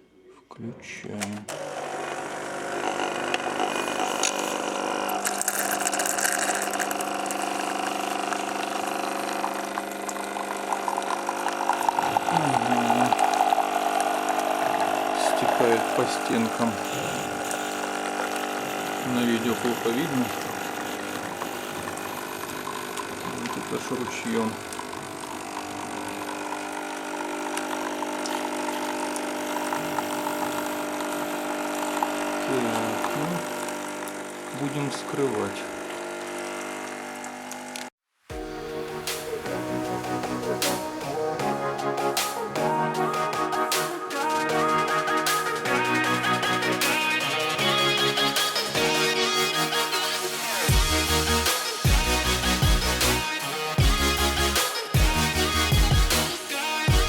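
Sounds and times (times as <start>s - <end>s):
coffee machine pump humming: 1.2s - 37.8s
water crackling and spluttering: 3.6s - 19.2s.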